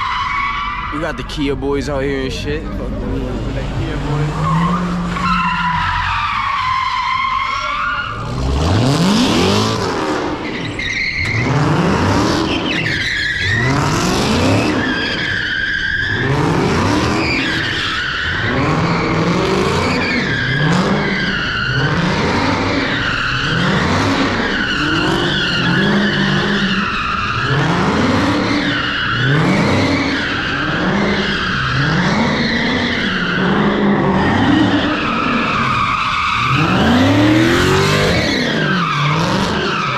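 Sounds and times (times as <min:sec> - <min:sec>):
car engine revving: 0:00.0 - 0:39.9
tyres squealing: 0:17.1 - 0:39.9.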